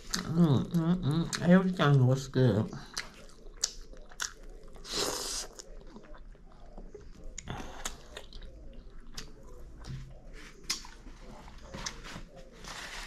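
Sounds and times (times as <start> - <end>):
chewing food: 0.0 - 13.0
mouth clicks and smacks: 2.9 - 10.0, 10.6 - 11.0.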